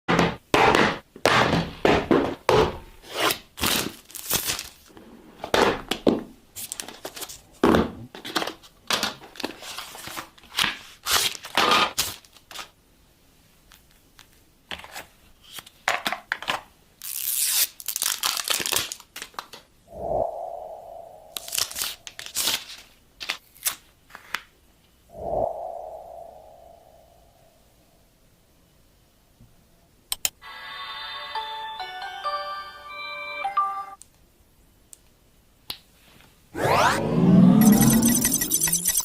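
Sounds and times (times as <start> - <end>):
packaging tearing and crinkling: 3.2 - 4.9, 8.3 - 12.7, 17.0 - 19.6, 21.4 - 23.9.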